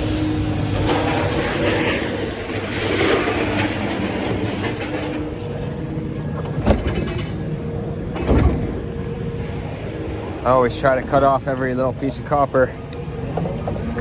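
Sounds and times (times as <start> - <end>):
scrap metal clanking: 0.0 - 8.9
engine running: 0.0 - 14.0.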